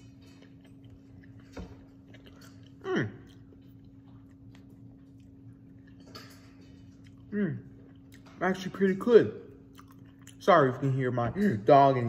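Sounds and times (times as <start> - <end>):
appreciative hum: 0.0 - 6.0, 6.8 - 8.4
person chewing food: 0.0 - 8.7, 9.5 - 11.7
steady low hum: 0.0 - 12.0.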